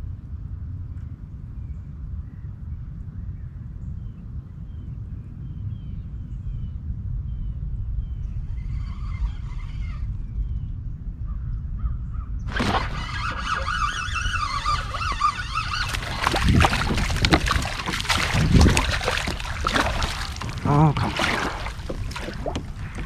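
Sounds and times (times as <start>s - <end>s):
wind rumbling on microphone: 0.0s - 23.0s
short knocks and splashes: 12.5s - 23.0s
loud wavering bird call: 12.9s - 16.8s.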